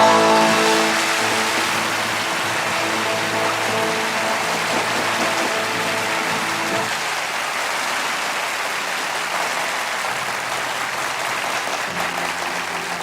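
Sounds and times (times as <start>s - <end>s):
band playing: 0.0s - 7.0s
audience applauding: 0.0s - 13.0s.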